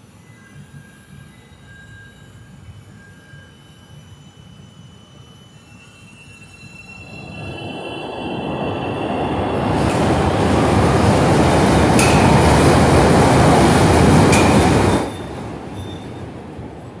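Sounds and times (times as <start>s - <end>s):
train wheels rumbling on rails: 6.8s - 17.0s
sharp rail clacks: 11.8s - 15.3s.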